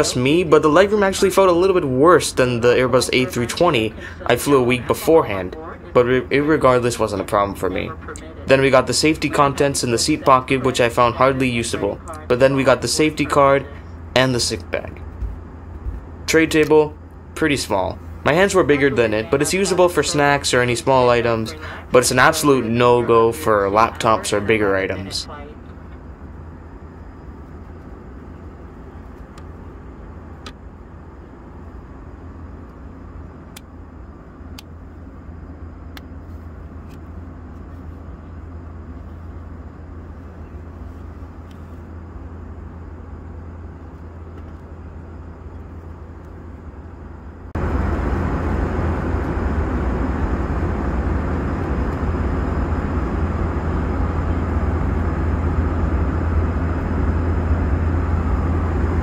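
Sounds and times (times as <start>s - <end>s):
jet engine hum: 0.0s - 59.0s.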